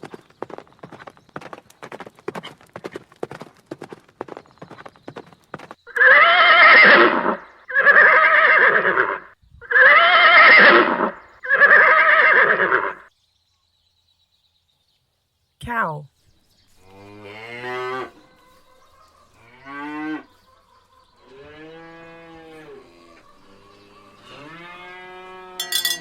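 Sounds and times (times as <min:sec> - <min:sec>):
horse hooves clip-clopping: 0:00.0 - 0:05.8
horse whinnying: 0:05.9 - 0:13.0.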